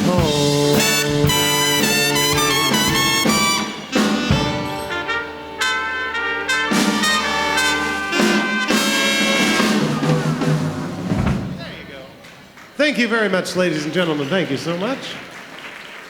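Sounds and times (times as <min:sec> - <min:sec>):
big band horn section: 0:00.0 - 0:12.2
rhythm section playing: 0:00.0 - 0:15.1.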